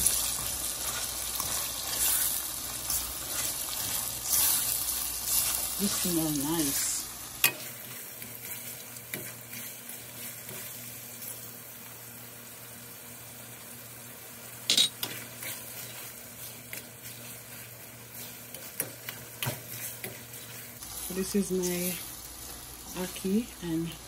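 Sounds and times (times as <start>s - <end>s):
food sizzling in a pan: 0.0s - 24.0s
fork scraping and tapping pan: 14.7s - 15.6s.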